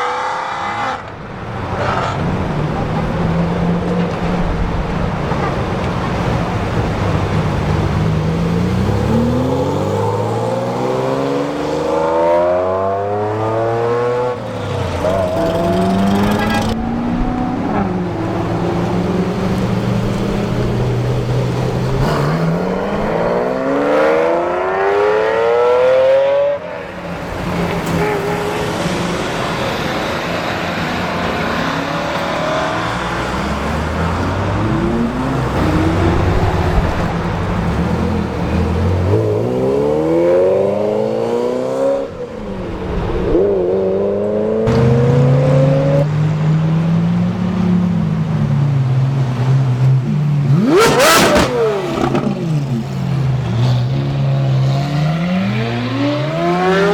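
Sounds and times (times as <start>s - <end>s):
car engines accelerating hard: 0.0s - 56.9s
cars idling: 1.0s - 10.4s, 14.4s - 24.5s, 26.8s - 41.1s.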